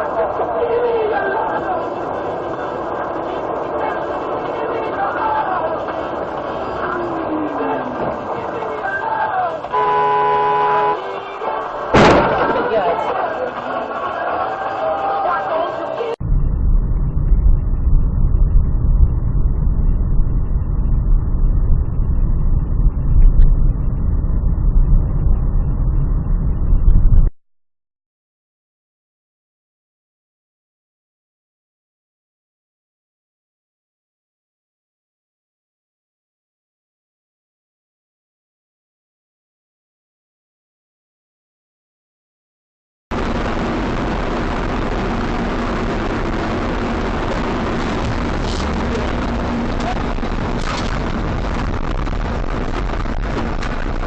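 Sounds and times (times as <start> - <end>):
car road and engine rumble: 0.0 - 14.8, 43.2 - 54.0
faint steady hum: 16.1 - 27.3.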